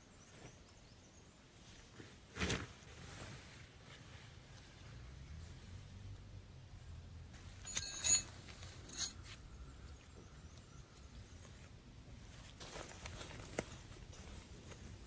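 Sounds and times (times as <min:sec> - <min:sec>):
faint background noise: 0:00.0 - 0:15.0
ringing clink of hard objects: 0:07.7 - 0:08.3, 0:08.9 - 0:09.2.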